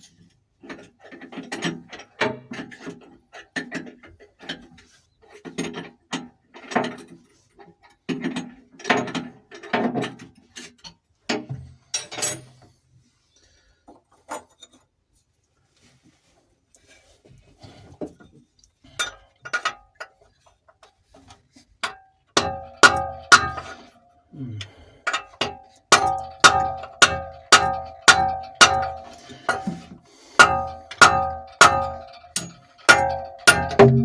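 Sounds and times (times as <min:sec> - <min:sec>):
hammer striking metal: 0:22.4 - 0:23.7, 0:25.9 - 0:29.8, 0:30.4 - 0:34.0.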